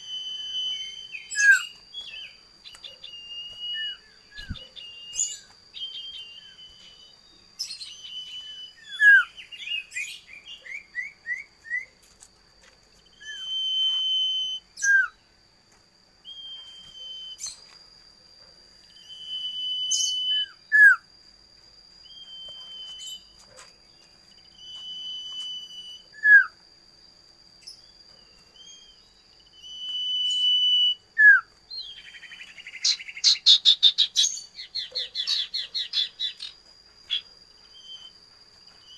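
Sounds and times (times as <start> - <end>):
bird whistling call: 0.0 - 12.0, 13.1 - 15.2, 16.2 - 17.6, 19.0 - 21.0, 22.1 - 23.4, 24.5 - 26.6, 28.6 - 38.1.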